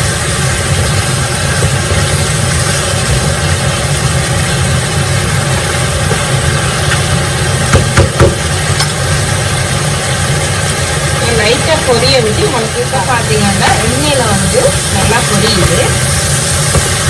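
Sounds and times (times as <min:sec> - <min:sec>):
chicken frying in oil: 0:00.0 - 0:17.0
loud mechanical hum: 0:00.0 - 0:17.0
utensil knocks: 0:07.7 - 0:09.0, 0:16.7 - 0:17.0.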